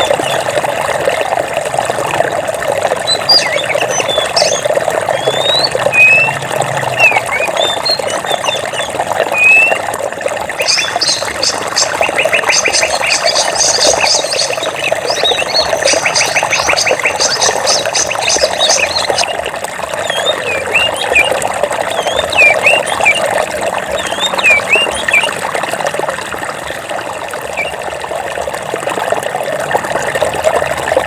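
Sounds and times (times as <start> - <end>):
water rushing: 0.0 - 31.0
birds chirping and trilling: 3.0 - 9.8, 10.5 - 19.4, 20.0 - 25.4, 27.6 - 27.8.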